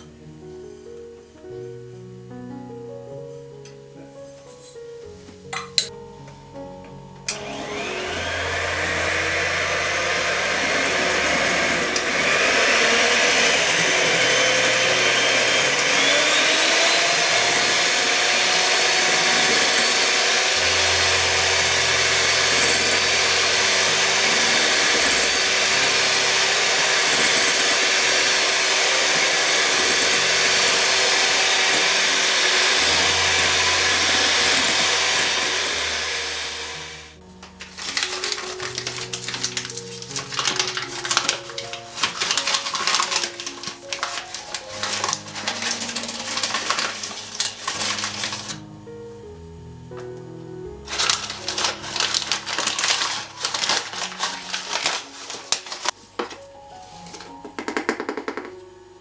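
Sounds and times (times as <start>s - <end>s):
soft piano music: 0.0s - 59.0s
electric mixer whining: 7.3s - 48.7s, 50.8s - 56.0s.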